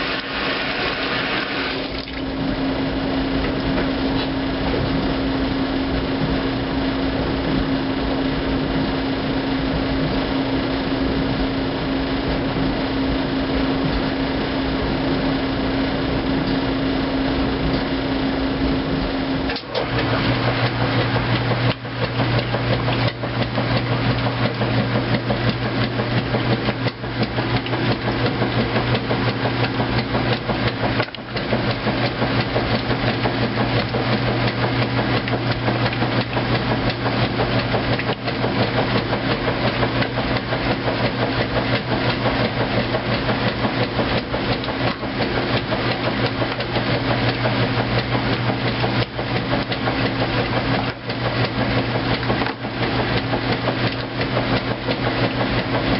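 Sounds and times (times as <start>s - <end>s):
washing machine hum: 0.0s - 55.9s
rapid knocking and clunking: 19.5s - 55.9s.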